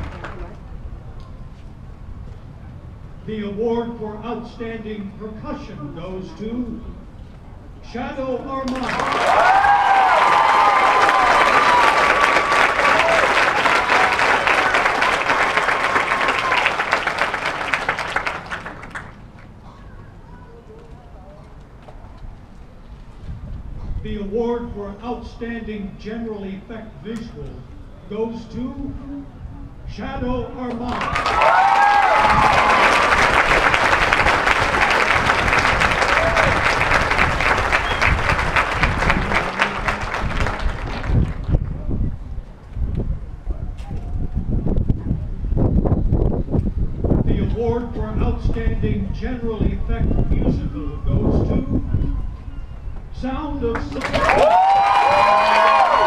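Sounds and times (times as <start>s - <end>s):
stadium crowd applauding: 8.7s - 19.5s, 30.8s - 41.9s, 53.7s - 56.0s
shouts: 8.8s - 16.7s, 30.9s - 33.1s, 54.0s - 56.0s
whistles: 37.7s - 38.2s, 51.9s - 53.0s.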